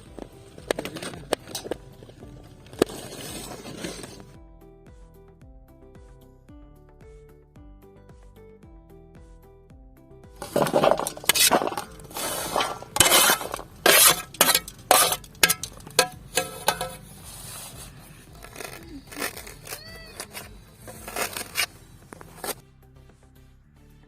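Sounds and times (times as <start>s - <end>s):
background music: 0.0s - 24.0s
cooking utensils clattering: 10.4s - 17.2s.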